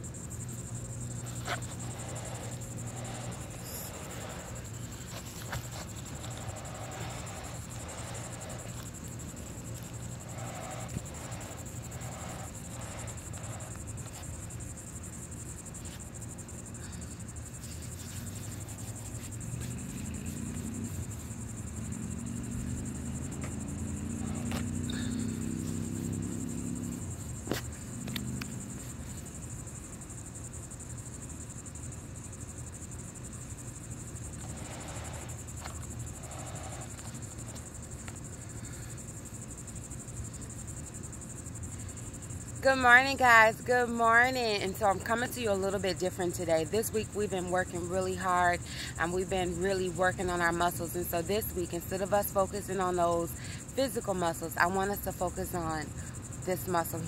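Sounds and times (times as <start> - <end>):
low outdoor rumble: 0.0 - 30.2
insects chirring: 0.0 - 57.0.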